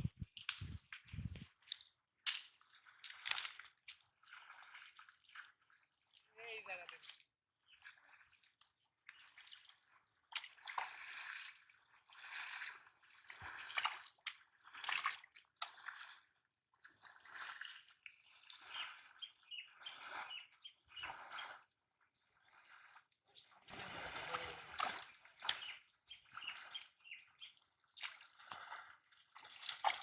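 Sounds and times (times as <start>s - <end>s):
shallow water splashing: 0.0s - 30.0s.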